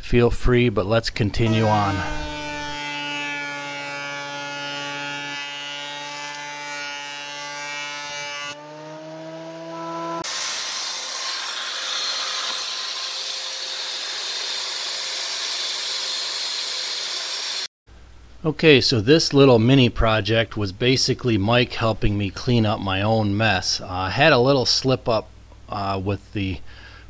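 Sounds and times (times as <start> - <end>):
rising whine: 1.5 - 2.8
power tool motor hum: 1.6 - 17.7.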